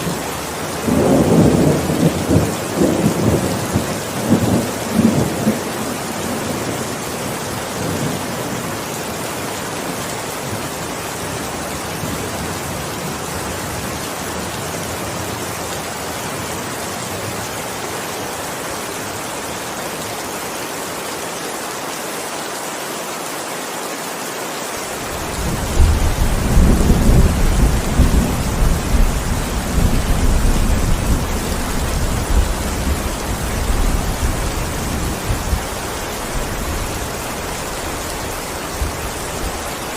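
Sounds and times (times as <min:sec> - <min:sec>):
heavy rain hissing: 0:00.0 - 0:39.9
deep rumble of thunder: 0:25.2 - 0:35.7.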